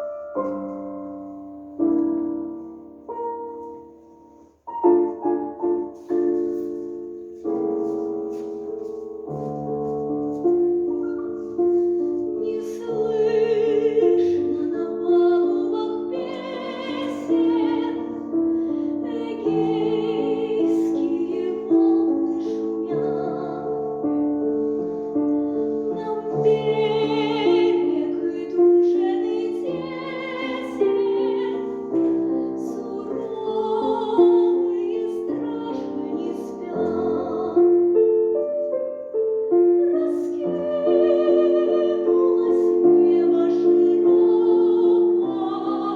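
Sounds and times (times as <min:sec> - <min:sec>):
piano: 0:00.0 - 0:45.9
woman singing with vibrato: 0:12.4 - 0:18.2, 0:19.0 - 0:23.8, 0:25.9 - 0:37.7, 0:39.8 - 0:45.9.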